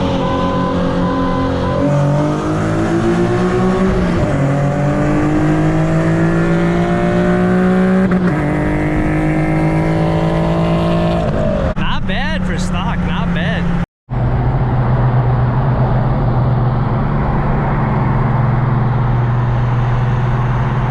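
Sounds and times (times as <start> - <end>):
car engine accelerating hard: 0.0 - 20.9.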